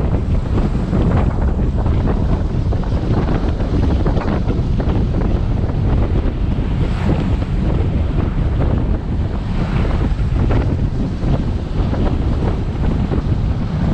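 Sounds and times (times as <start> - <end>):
road noise: 0.0 - 13.9
wind buffeting microphone: 0.0 - 13.9.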